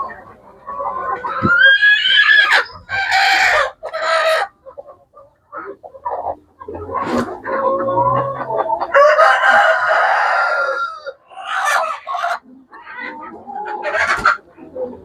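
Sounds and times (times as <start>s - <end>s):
chickens clucking: 0.0s - 15.0s
rooster crowing: 8.9s - 11.2s.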